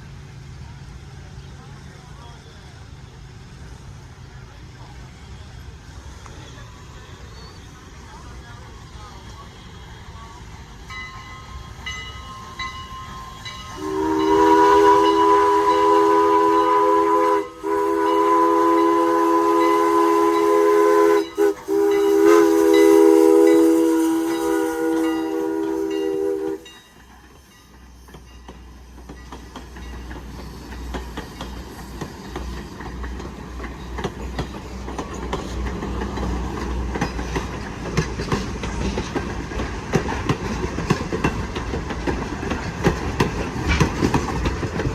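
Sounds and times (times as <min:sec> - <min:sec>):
train rumbling and clattering past: 0:00.0 - 0:44.9
train horn chord: 0:11.7 - 0:26.7.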